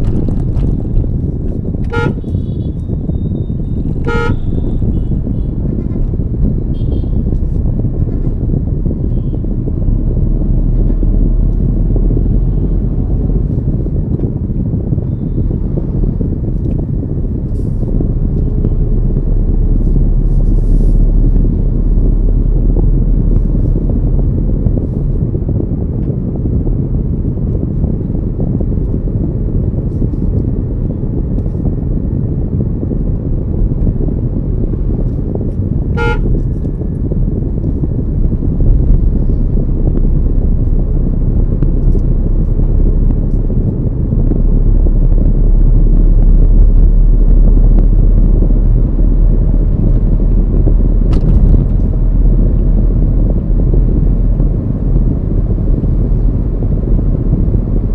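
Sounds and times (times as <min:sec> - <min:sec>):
car road and wind rumble: 0:00.0 - 0:57.9
short vehicle horn toot: 0:01.9 - 0:02.7, 0:04.0 - 0:04.7, 0:36.0 - 0:36.3.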